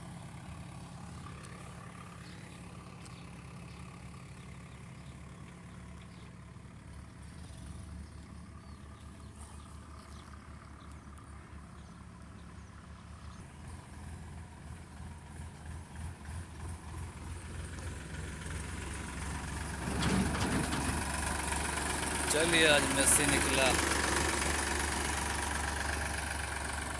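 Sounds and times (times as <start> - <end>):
diesel engine idling: 0.0 - 26.9.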